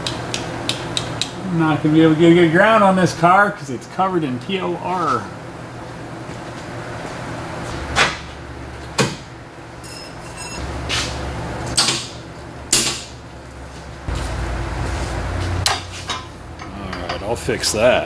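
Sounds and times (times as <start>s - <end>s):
metal ring: 9.8s - 10.7s
low hum: 9.8s - 17.8s
metallic clanks and knocks: 15.4s - 17.4s.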